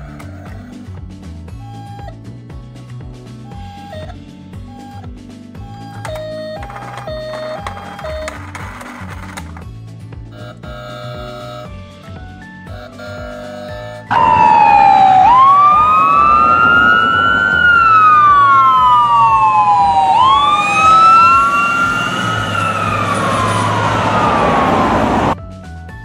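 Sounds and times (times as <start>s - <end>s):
ambulance siren wailing: 5.6s - 8.6s, 13.1s - 25.4s
road noise: 5.6s - 12.3s, 14.1s - 25.4s.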